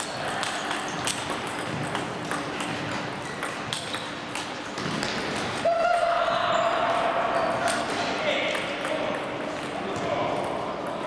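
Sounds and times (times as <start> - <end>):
background hubbub: 0.0 - 5.0
table tennis balls clicking: 0.0 - 5.6, 8.4 - 11.0.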